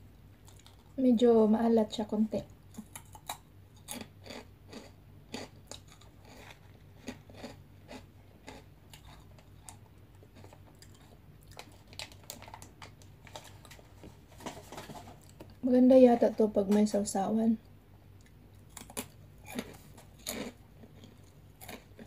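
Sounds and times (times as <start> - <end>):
crunchy snack chewing: 0.4 - 1.0, 2.7 - 13.9, 18.2 - 22.0.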